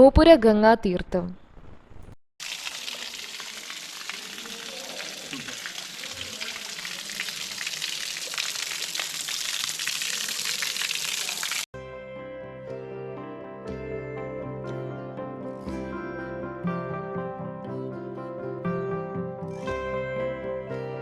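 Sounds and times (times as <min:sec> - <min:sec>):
spring water splashing: 0:02.4 - 0:11.7.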